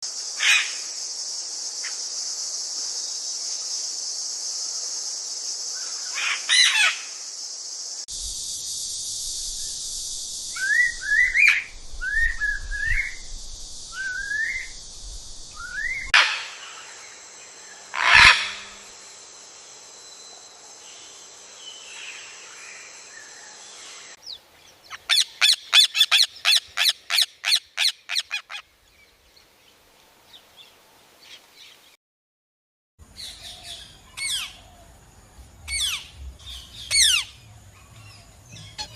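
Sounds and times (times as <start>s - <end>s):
parrot whistled chirps: 10.6s - 13.2s, 14.0s - 14.8s, 15.6s - 16.2s
parrot harsh squawks: 17.9s - 18.8s, 24.9s - 28.6s
parrots calling: 17.9s - 18.8s, 24.9s - 28.6s, 33.3s - 34.7s, 35.7s - 36.1s, 36.7s - 37.5s, 38.6s - 38.9s.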